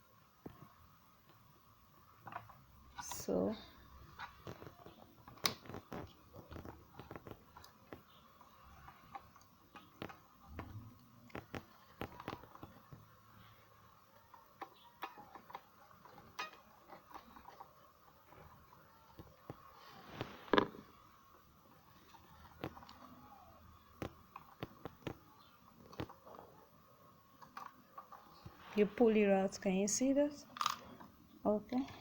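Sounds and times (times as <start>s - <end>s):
small clicks and taps: 4.2s - 13.1s, 23.8s - 26.4s.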